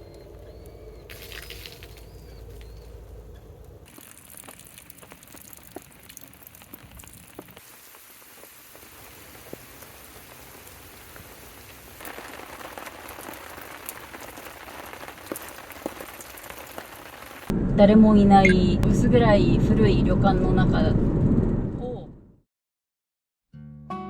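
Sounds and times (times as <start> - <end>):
raindrops ticking sharply: 0.0 - 17.5
steady rain falling: 3.9 - 17.5.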